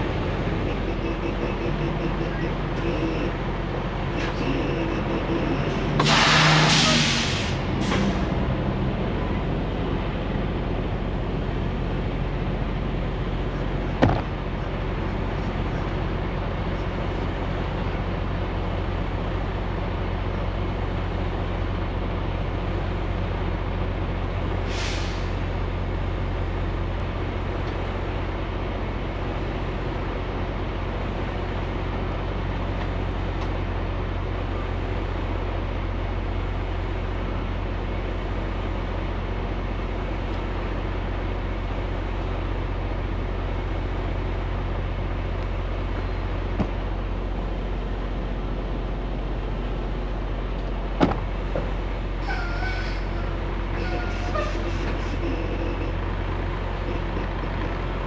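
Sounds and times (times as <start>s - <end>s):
road noise: 0.0s - 58.0s
truck engine drone: 0.0s - 58.0s
brief hiss: 6.0s - 8.2s.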